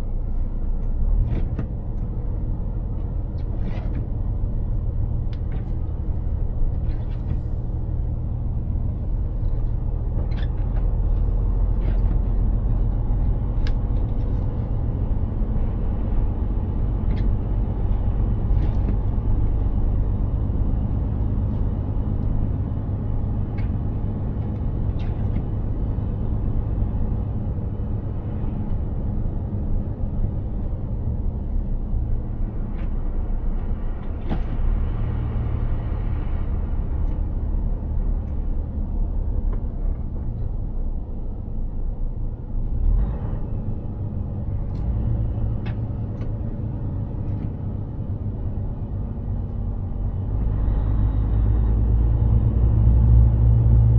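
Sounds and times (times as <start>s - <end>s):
heavy truck engine and road rumble: 0.0s - 53.9s.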